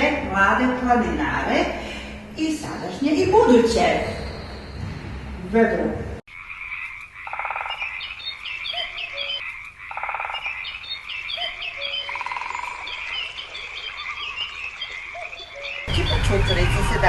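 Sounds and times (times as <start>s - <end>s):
frogs croaking: 6.3s - 17.0s.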